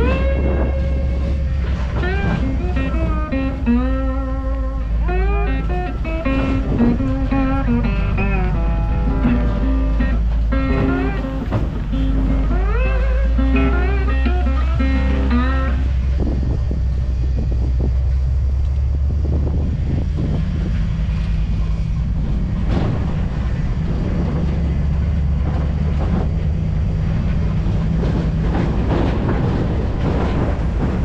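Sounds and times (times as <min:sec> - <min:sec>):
knocks and rustles: 0:00.0 - 0:04.2, 0:05.1 - 0:16.8, 0:20.0 - 0:31.0
pickup truck engine and road noise: 0:00.0 - 0:31.0.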